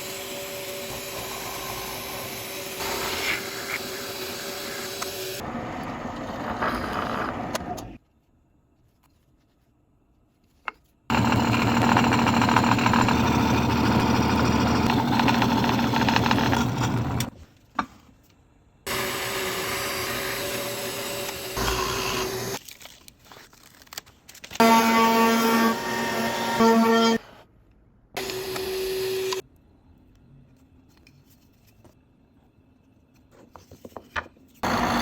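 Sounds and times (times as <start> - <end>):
electric power tool cutting: 0.0 - 7.9, 11.1 - 17.3, 18.9 - 22.6, 24.6 - 27.2, 28.2 - 29.4, 34.6 - 35.0.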